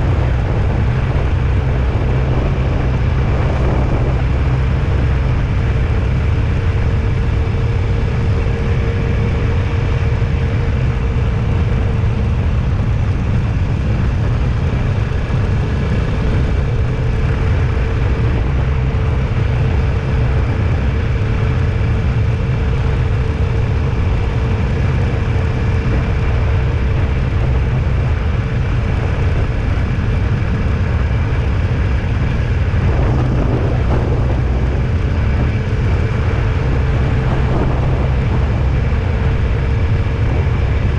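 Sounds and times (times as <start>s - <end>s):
faint steady hum: 0.0s - 40.9s
vehicle rumble: 0.0s - 40.9s.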